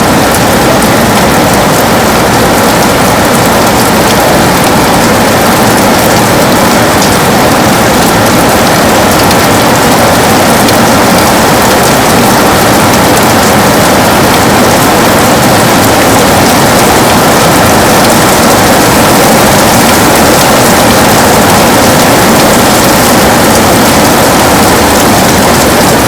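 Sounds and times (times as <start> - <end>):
heavy rain on a window: 0.0 - 26.0.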